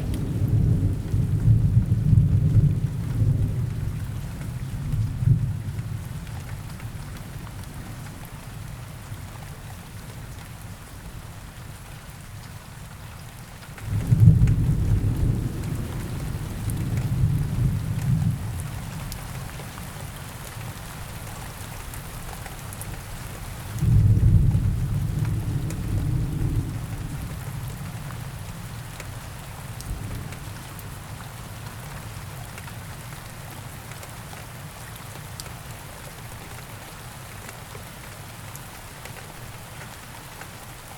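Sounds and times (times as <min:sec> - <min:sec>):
steady rain in a forest: 0:00.0 - 0:40.9
thunder rumbling: 0:13.8 - 0:18.5, 0:23.8 - 0:27.7.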